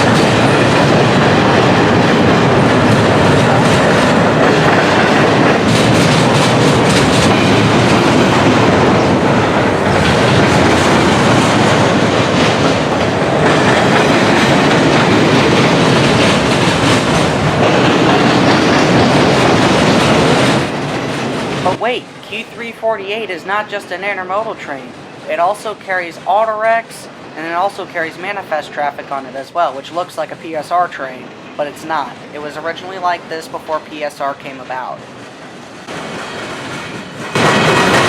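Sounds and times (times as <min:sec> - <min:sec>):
wheels clicking over rail joints: 0:00.0 - 0:21.8, 0:35.0 - 0:38.0
freight train rolling past: 0:00.0 - 0:38.0.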